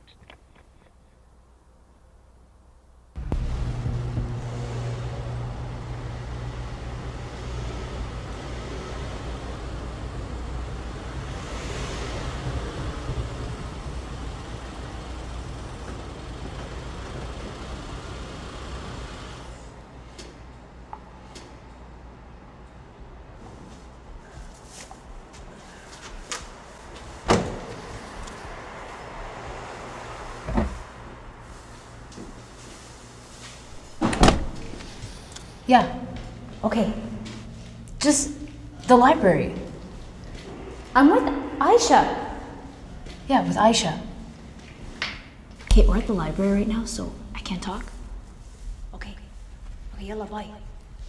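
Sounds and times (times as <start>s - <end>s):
car engine and tyre rumble: 3.2s - 19.9s, 26.6s - 35.6s
car door slamming: 33.9s - 34.9s.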